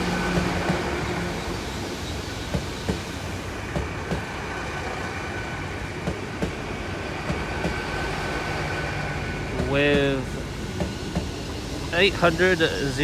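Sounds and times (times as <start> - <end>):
train wheels clicking over rail joints: 0.0 - 4.3, 9.5 - 13.0
train hum and whine: 0.0 - 13.0.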